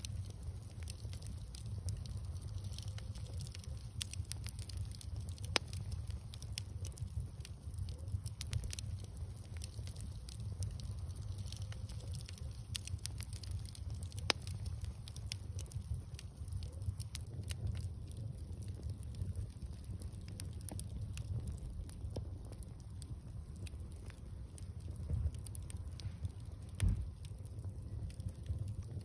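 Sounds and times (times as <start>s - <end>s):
bonfire crackling: 0.0s - 29.0s
fire low rumble: 0.0s - 29.0s.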